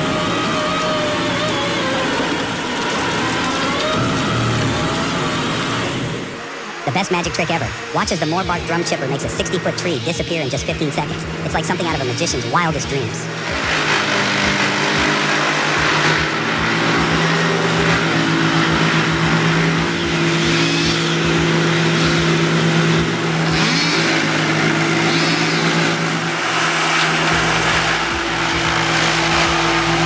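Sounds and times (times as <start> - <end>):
chipper engine drone: 0.0 - 30.0
wood chipping noise: 0.0 - 30.0.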